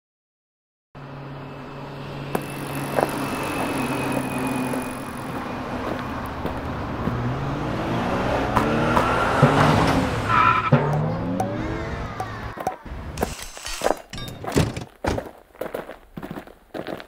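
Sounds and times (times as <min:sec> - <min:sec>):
car engine revving: 0:02.2 - 0:13.2.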